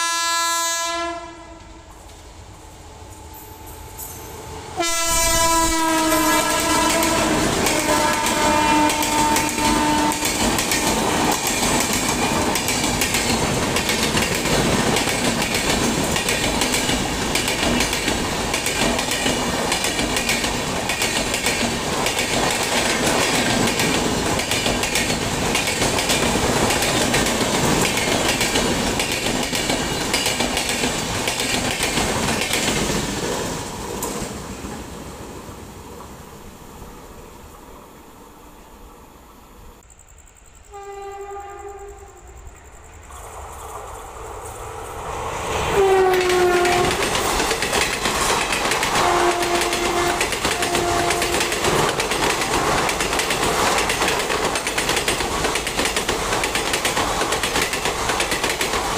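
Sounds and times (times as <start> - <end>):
locomotive horn: 0.0 - 1.9, 3.7 - 10.6, 40.7 - 42.3, 45.7 - 47.0, 49.0 - 51.5
wheels clickety-clack over joints: 6.6 - 34.8, 46.1 - 58.9.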